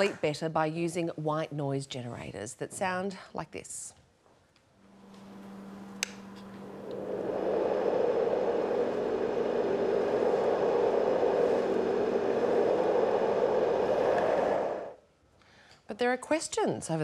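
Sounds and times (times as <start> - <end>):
white noise machine hiss: 4.8 - 15.0.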